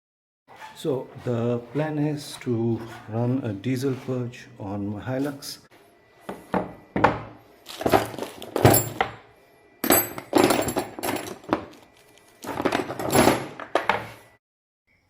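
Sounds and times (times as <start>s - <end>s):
hard objects knocking and clattering: 6.3s - 9.2s, 12.4s - 14.1s.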